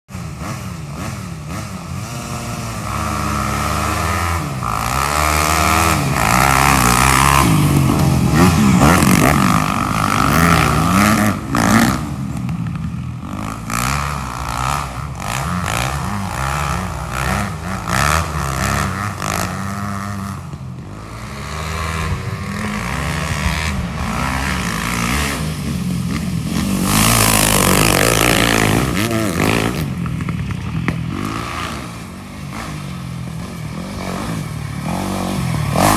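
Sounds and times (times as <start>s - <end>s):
off-road engines revving: 0.1s - 35.9s.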